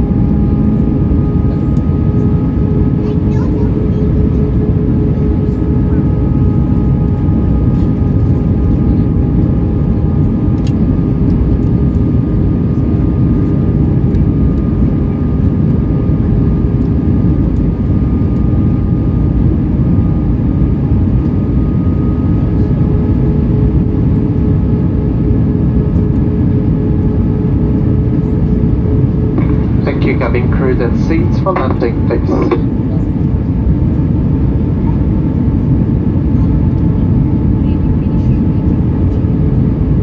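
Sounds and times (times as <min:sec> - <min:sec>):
jet engines humming: 0:00.0 - 0:40.0
rushing airflow in cabin: 0:00.0 - 0:40.0
steady tones: 0:29.3 - 0:32.8.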